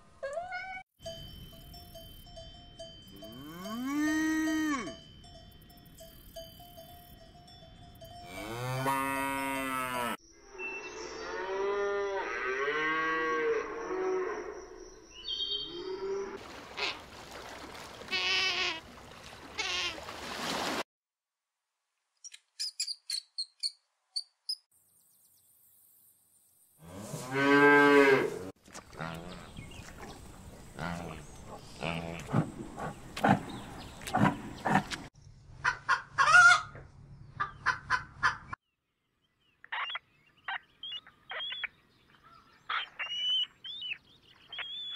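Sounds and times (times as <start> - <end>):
cattle mooing: 3.2 - 5.0, 8.2 - 10.2, 30.8 - 32.4
rising and falling animal calls: 39.7 - 44.9.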